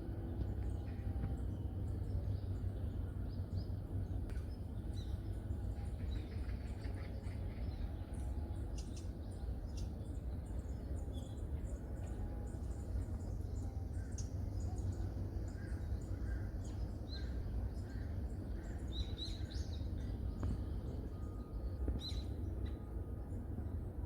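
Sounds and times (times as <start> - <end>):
steady low rumble: 0.0 - 24.0
small birds chirping: 0.3 - 22.8.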